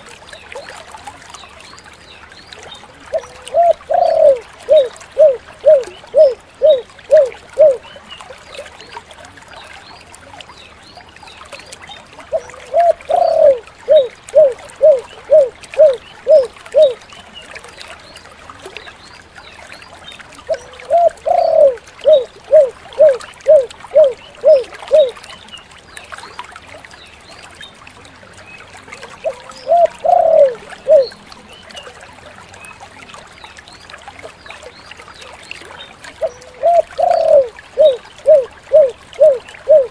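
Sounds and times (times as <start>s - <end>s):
dove cooing: 3.1s - 7.8s, 12.3s - 17.0s, 20.5s - 25.1s, 29.2s - 31.2s, 36.2s - 39.9s.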